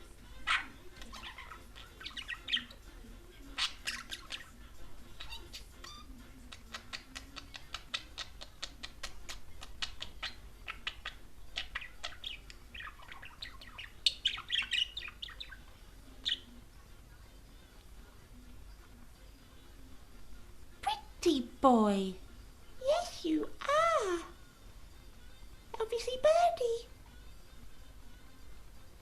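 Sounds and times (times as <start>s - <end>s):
budgerigar chattering: 0.4s - 2.8s, 5.2s - 15.7s.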